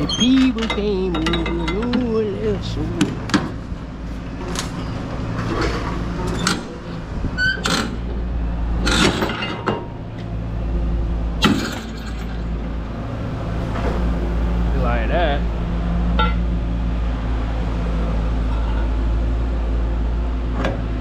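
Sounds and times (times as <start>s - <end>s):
steel chains clanking: 0.0s - 3.1s, 11.4s - 12.6s.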